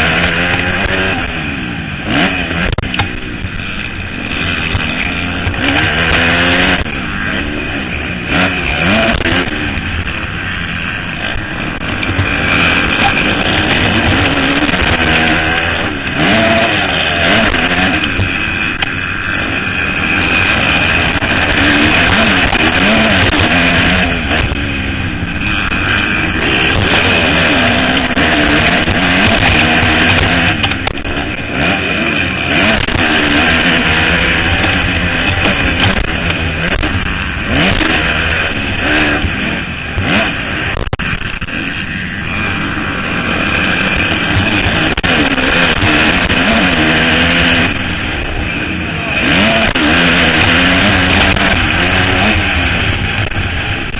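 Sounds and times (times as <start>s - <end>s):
motocross bike engines revving: 0.0s - 53.9s.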